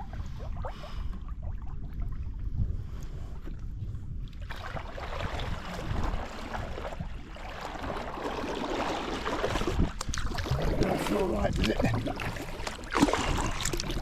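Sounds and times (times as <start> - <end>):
wind rumble on microphone: 0.0 - 14.0
paddle strokes splashing water: 4.3 - 14.0.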